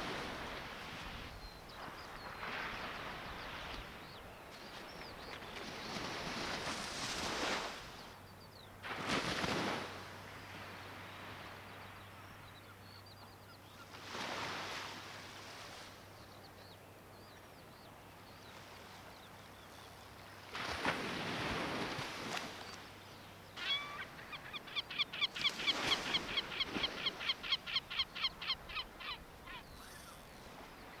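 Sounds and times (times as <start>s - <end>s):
bird calling harsh notes: 23.6s - 30.5s.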